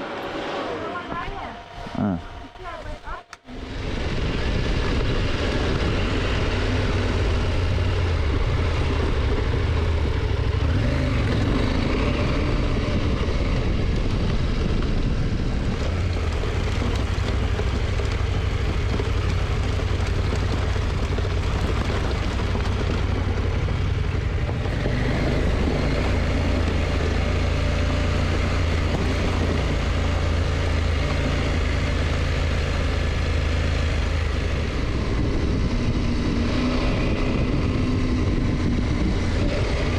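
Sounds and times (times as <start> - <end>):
wind rush: 0.0 - 17.1, 34.3 - 39.9
motorcycle engine cruising: 0.0 - 39.9.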